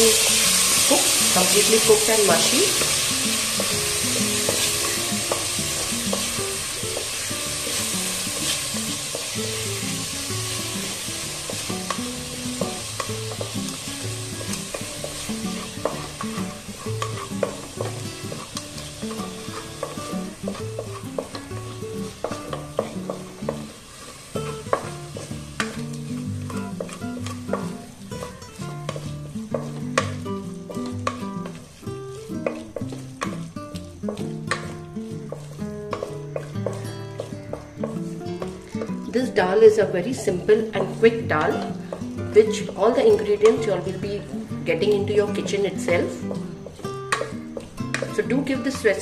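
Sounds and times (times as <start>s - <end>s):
soft background music: 0.0s - 49.0s
tomatoes sizzling in hot oil: 0.0s - 49.0s.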